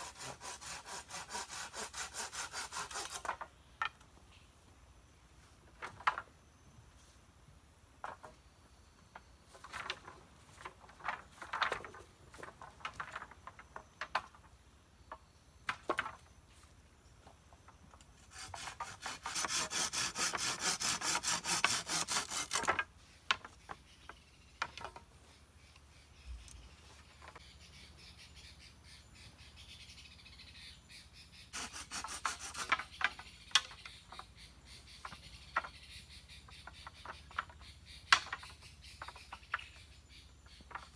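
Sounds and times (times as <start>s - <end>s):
hand saw cutting wood: 0.0s - 3.3s, 18.2s - 22.8s, 31.6s - 33.1s.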